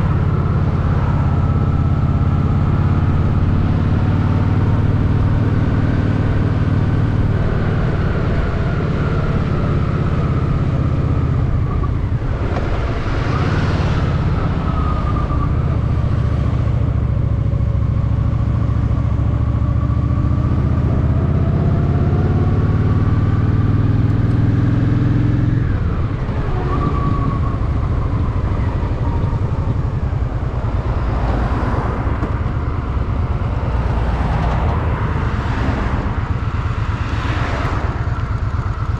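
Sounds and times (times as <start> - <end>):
rush of noise: 7.2 - 17.0, 25.1 - 38.9
motorcycle engine running: 31.9 - 38.9.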